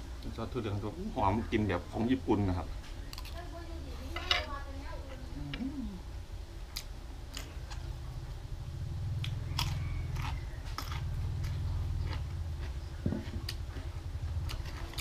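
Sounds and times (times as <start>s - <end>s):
low hum: 2.9s - 15.0s
crunchy cucumber bites: 9.2s - 15.0s.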